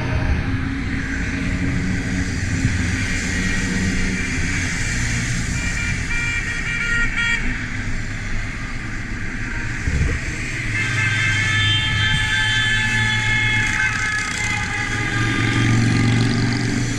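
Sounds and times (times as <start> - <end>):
wind and road noise: 0.0 - 16.9
vehicle horns honking: 5.6 - 7.6, 9.4 - 16.6.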